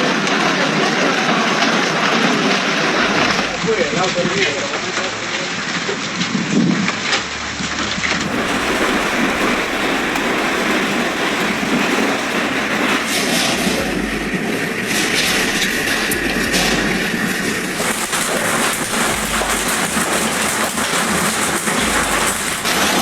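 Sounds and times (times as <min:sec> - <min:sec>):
hail and heavy rain pounding: 0:08.1 - 0:23.0.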